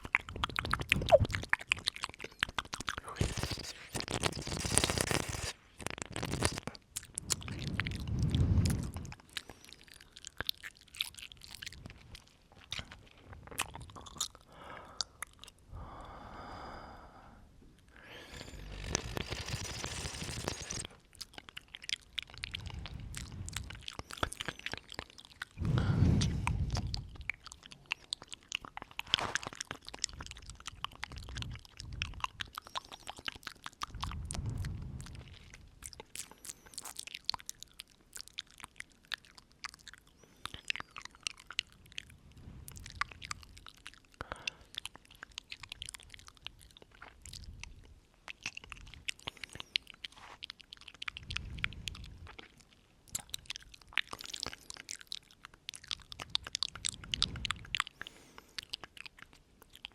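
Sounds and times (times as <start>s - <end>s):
wet mouth clicks and smacks: 0.0s - 16.6s, 17.8s - 59.9s
breaths blown onto microphone: 25.6s - 26.9s.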